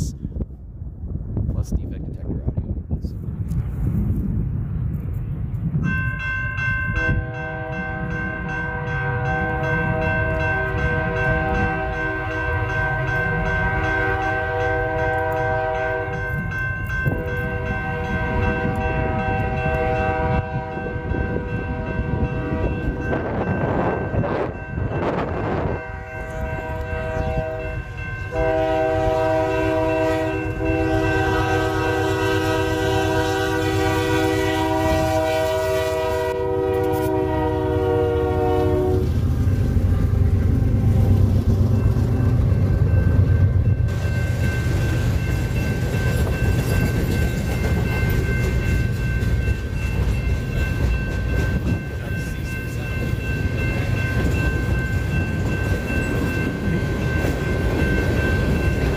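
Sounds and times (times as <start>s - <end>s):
train rumbling past: 0.7s - 58.9s
train air horn blasts: 7.0s - 16.3s, 17.1s - 23.2s, 25.4s - 39.1s.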